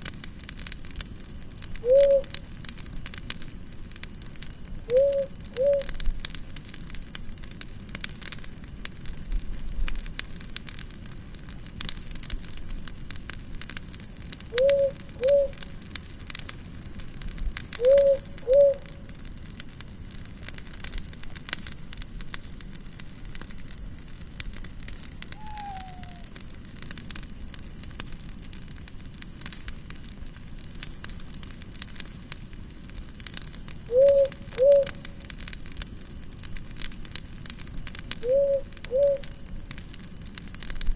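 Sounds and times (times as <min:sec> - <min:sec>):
campfire crackling: 0:00.0 - 0:40.9
quick high chirps: 0:10.5 - 0:11.8, 0:30.8 - 0:32.2
lower two-note bird call: 0:25.4 - 0:26.2.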